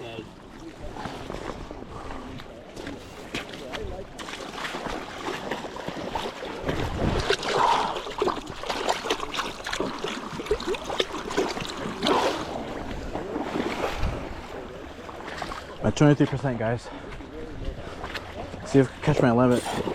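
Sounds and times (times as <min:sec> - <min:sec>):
river water rushing and splashing: 0:04.2 - 0:16.2
wind buffeting microphone: 0:06.6 - 0:08.7, 0:09.4 - 0:15.9.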